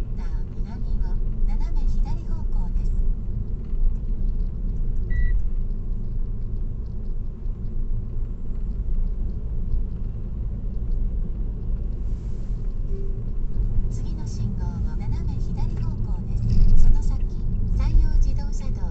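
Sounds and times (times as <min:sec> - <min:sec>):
road and tyre rumble: 0:00.0 - 0:18.9
high beep: 0:05.1 - 0:05.4, 0:12.9 - 0:13.3.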